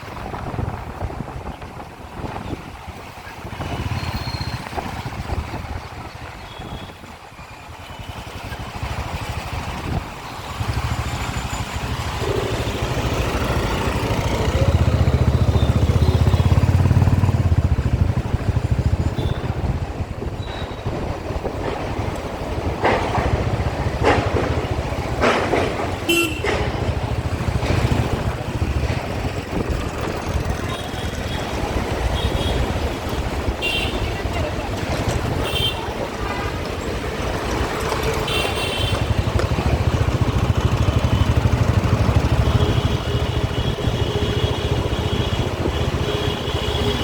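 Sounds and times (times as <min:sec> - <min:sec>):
motorcycle engine and wind rumble: 0:00.0 - 0:47.0
horn toots: 0:12.0 - 0:16.9, 0:26.0 - 0:26.9.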